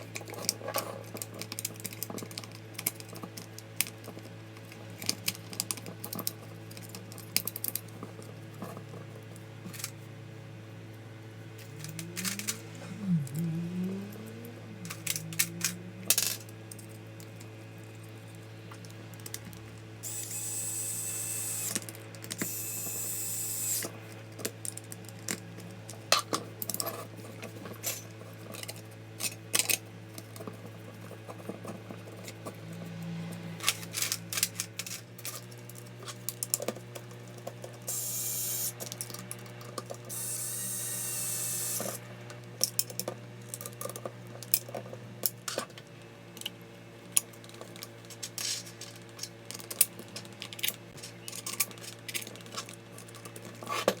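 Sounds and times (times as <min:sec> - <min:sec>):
steady low hum: 0:00.0 - 0:53.6
clicks and knocks of tool parts: 0:33.6 - 0:37.9, 0:46.4 - 0:54.0.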